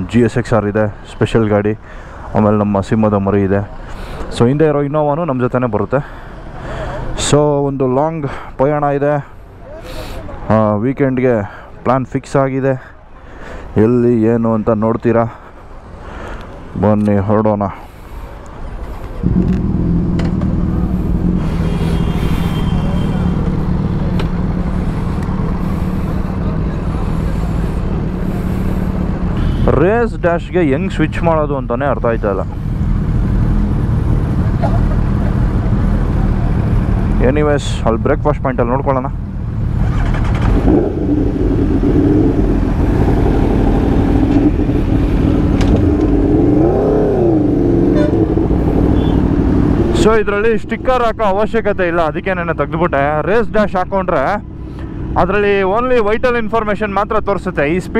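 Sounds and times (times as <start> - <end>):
motorcycle engine running: 19.2 - 29.6, 39.1 - 50.4
motorcycle engine running steadily: 19.2 - 29.7, 32.6 - 37.4.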